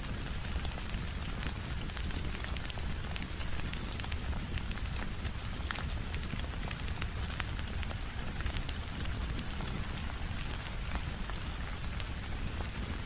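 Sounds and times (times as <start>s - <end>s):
rain tapping on a window: 0.0s - 13.0s
wood fire crackling: 0.0s - 13.0s.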